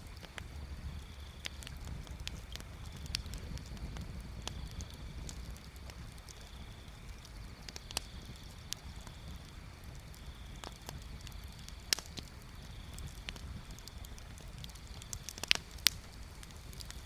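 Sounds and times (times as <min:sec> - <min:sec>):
bonfire crackling: 0:00.0 - 0:17.0
low steady fire rumble: 0:00.0 - 0:17.0
sharp fire pops: 0:00.0 - 0:17.0.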